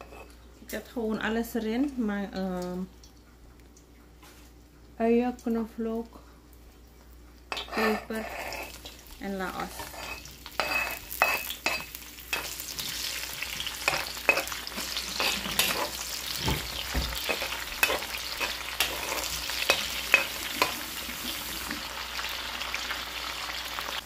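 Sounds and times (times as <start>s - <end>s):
vegetables sizzling in hot oil: 7.6s - 24.0s
utensil scraping and knocking pan: 9.6s - 20.8s.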